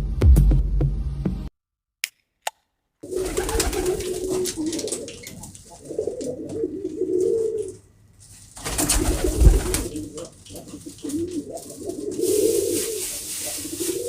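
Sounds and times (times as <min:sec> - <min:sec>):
pigeons cooing: 0:03.0 - 0:07.9, 0:08.6 - 0:14.0.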